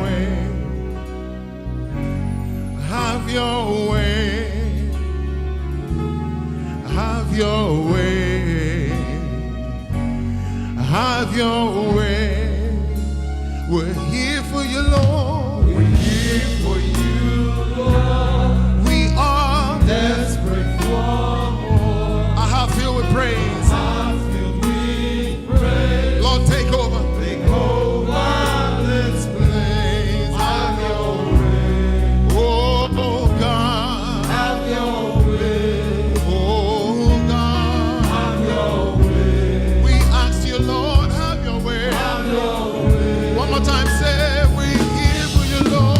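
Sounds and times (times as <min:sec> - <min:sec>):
choir singing: 0:00.0 - 0:01.2, 0:14.7 - 0:45.9
bass line: 0:00.0 - 0:45.9.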